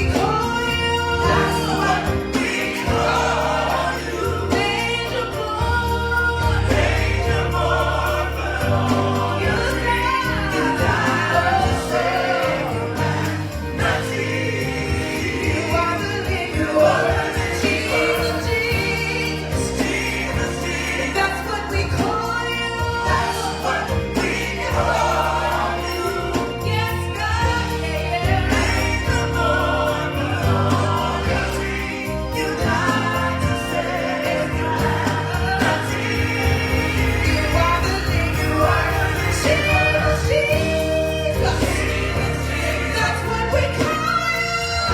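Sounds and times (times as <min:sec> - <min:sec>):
bass: 0:00.0 - 0:44.9
drums keeping a steady beat: 0:00.0 - 0:44.9
gospel choir singing: 0:00.0 - 0:44.9.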